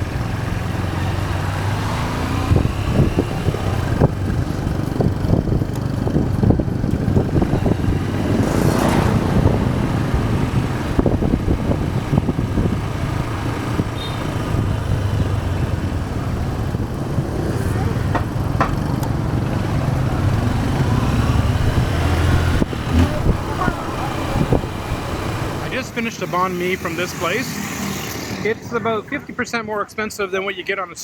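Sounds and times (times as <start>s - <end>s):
motorcycle engine running: 0.0s - 28.4s
street noise: 0.0s - 31.0s
rushing noise: 7.1s - 29.5s
short knocks: 18.0s - 19.2s.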